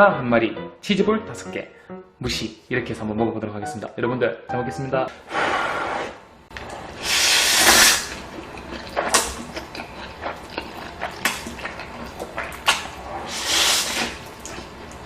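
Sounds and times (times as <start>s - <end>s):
wet chewing smacks and clicks: 8.1s - 13.0s, 14.0s - 15.0s
loud airy slurp: 13.2s - 14.2s.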